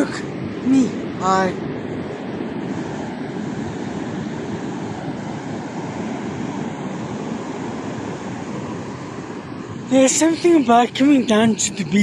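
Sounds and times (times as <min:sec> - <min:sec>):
waves breaking on beach: 0:00.0 - 0:12.0
wind buffeting microphone: 0:00.0 - 0:12.0.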